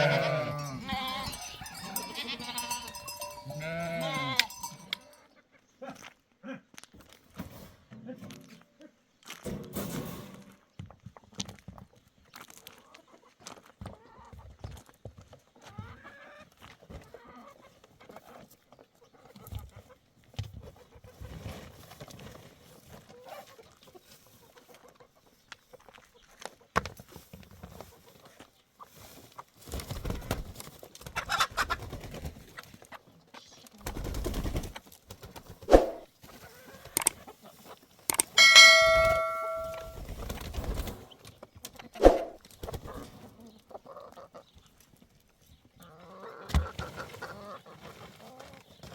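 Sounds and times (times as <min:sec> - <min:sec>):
chickens clucking: 0:00.0 - 0:05.7, 0:15.5 - 0:48.9.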